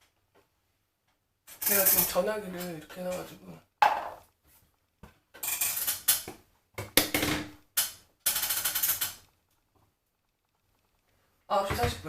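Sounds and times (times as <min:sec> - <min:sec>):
small objects clicking and rattling: 0:05.3 - 0:06.3, 0:07.7 - 0:11.0.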